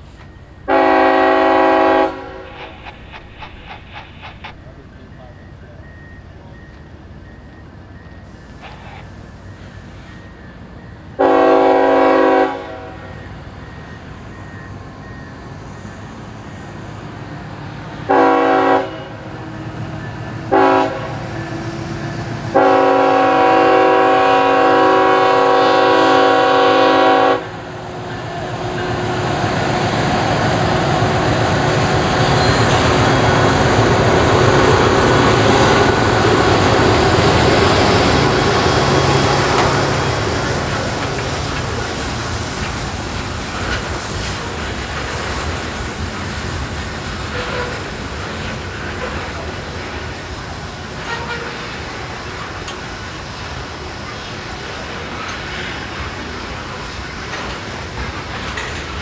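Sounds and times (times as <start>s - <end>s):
train rumbling past on rails: 0.0s - 59.0s
locomotive air horn blasts: 0.7s - 2.8s, 11.2s - 13.1s, 18.1s - 19.3s, 20.5s - 21.3s, 22.5s - 27.6s, 51.0s - 51.8s.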